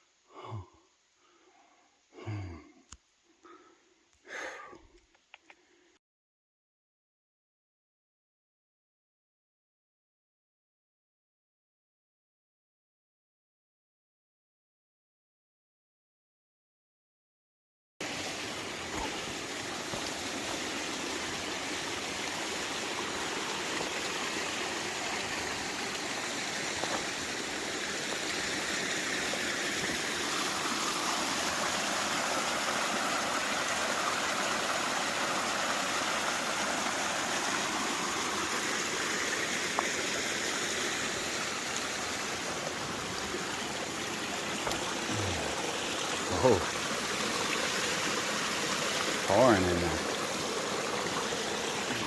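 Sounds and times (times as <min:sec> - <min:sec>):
water rushing under boulders: 0:18.0 - 0:52.0.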